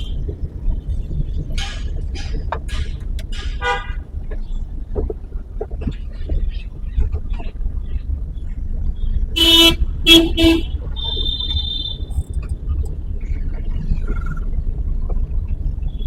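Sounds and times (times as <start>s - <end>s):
car driving in traffic: 0.0s - 16.0s
vehicle horn honking: 1.6s - 4.0s, 9.4s - 12.2s.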